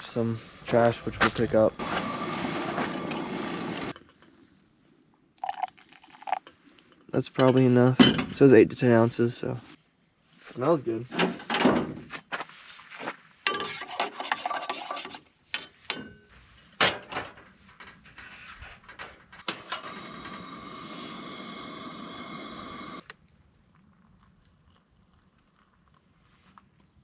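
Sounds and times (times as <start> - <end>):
steady hiss with thin whine: 0.0 - 3.9, 19.5 - 23.2.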